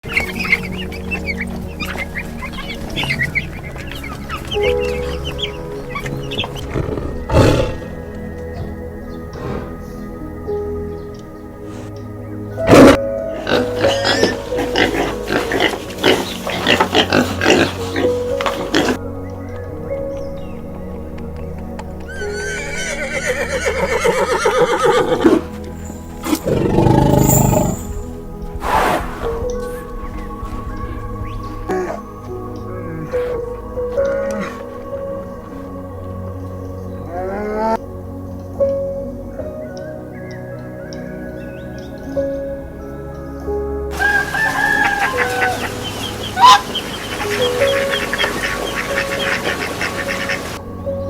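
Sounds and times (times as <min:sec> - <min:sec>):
flock of birds calling: 0:00.0 - 0:28.2, 0:43.9 - 0:51.0
background music with held notes: 0:00.0 - 0:51.0
low rough animal call: 0:05.9 - 0:08.0, 0:26.2 - 0:28.0
horse whinnying: 0:22.1 - 0:25.5, 0:26.3 - 0:28.0
harsh bird call: 0:43.9 - 0:50.6.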